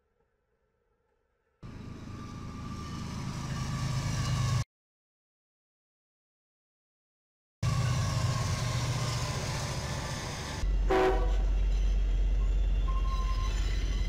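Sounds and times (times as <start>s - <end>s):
diesel locomotive engine drone: 1.6s - 4.6s, 7.6s - 14.0s
freight train rumble: 1.6s - 4.6s, 7.6s - 14.0s
train horn blast: 10.7s - 11.6s.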